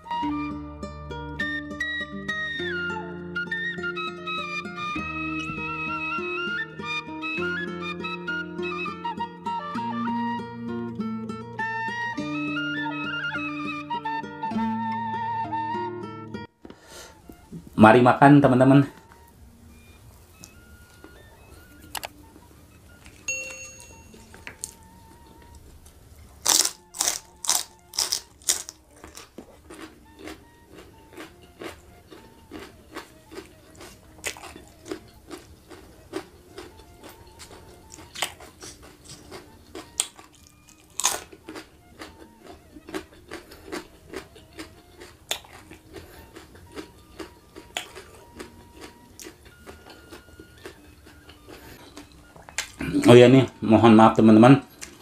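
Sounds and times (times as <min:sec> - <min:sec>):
open-mouthed chewing: 0:24.1 - 0:53.6
crisp crunching of bean: 0:25.8 - 0:53.0.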